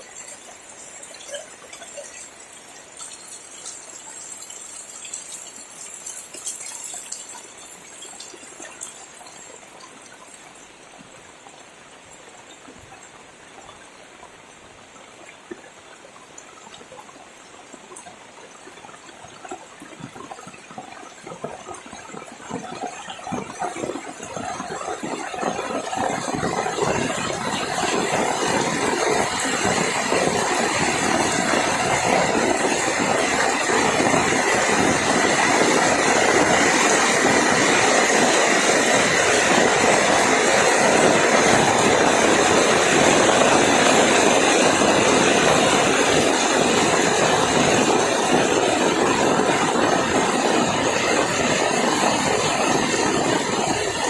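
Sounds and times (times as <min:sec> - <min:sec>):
heavy rain: 0:22.2 - 0:54.0.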